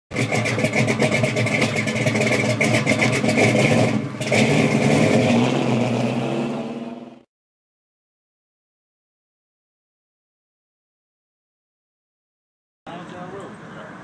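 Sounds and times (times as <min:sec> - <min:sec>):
car engine running loudly: 0:00.1 - 0:07.2.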